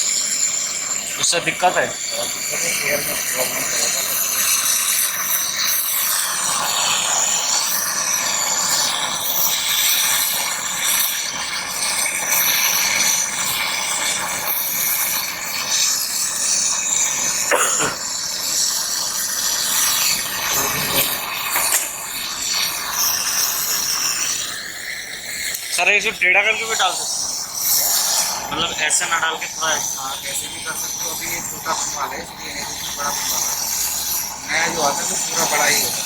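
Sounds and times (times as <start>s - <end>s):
torch flame hissing: 0.0s - 36.0s.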